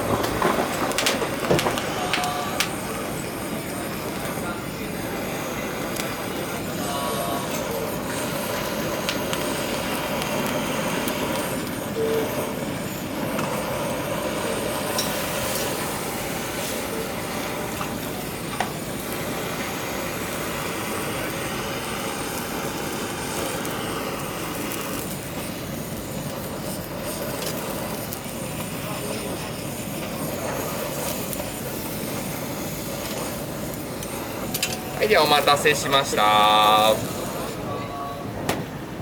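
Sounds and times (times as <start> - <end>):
faint voices: 0.1 - 9.7.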